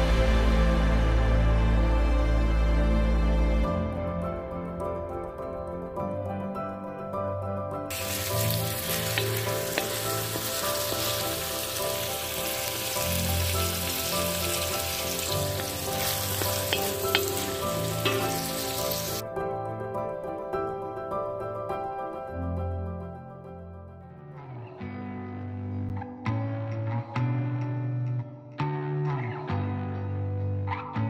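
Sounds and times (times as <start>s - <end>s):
background music: 0.0s - 31.0s
food sizzling in a pan: 7.9s - 19.2s.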